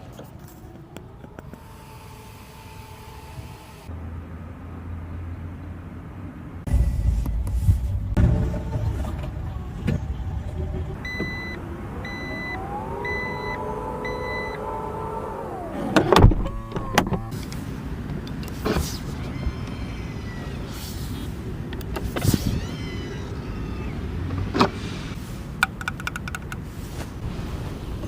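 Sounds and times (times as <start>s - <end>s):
electric motor whining: 1.3s - 3.9s
electronic warning beeps: 11.0s - 14.6s.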